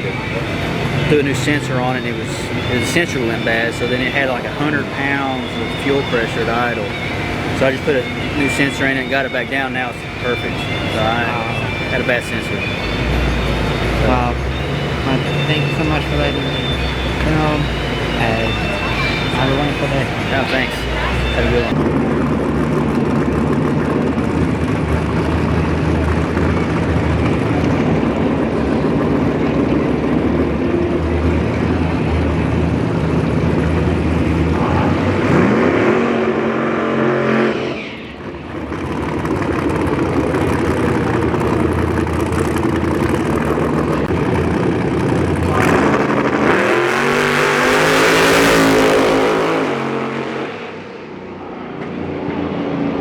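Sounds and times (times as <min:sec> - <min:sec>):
race car engines revving: 0:00.0 - 0:53.0.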